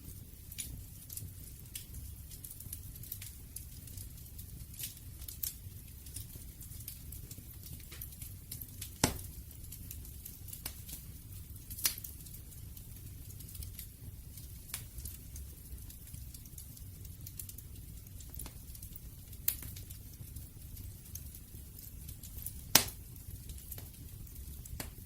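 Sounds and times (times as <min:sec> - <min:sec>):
wood fire crackling: 0:00.0 - 0:25.0
loud sharp pops: 0:09.0 - 0:09.3, 0:22.8 - 0:23.0.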